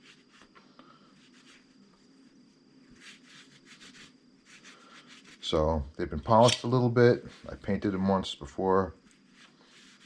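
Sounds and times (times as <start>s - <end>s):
steel shears handling noise: 6.3s - 6.8s.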